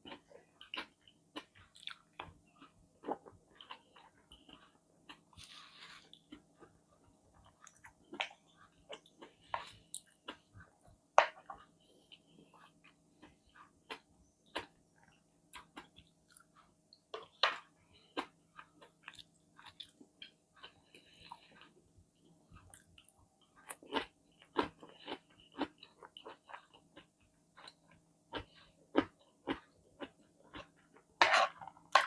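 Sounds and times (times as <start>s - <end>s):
person chewing food: 0.0s - 32.0s.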